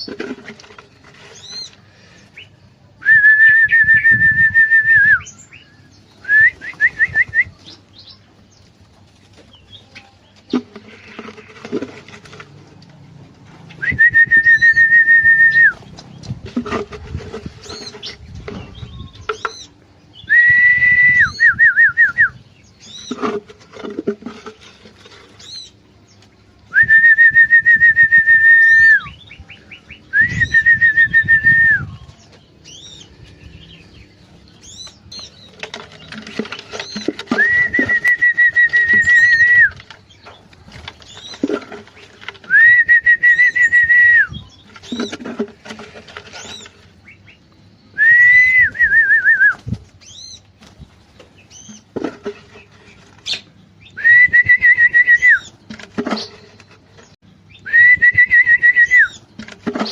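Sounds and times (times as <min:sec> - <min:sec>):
birds whistling level notes: 0:00.0 - 0:08.7, 0:13.7 - 0:59.9.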